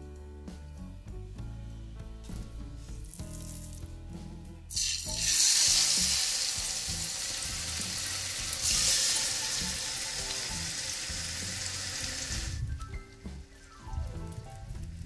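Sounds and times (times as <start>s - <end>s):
chicken sizzling in hot oil: 4.7s - 15.0s.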